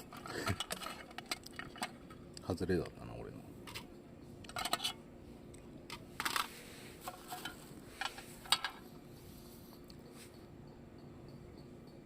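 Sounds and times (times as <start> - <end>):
tableware and utensils clattering: 0.0 - 2.2, 4.5 - 5.0, 6.2 - 9.1.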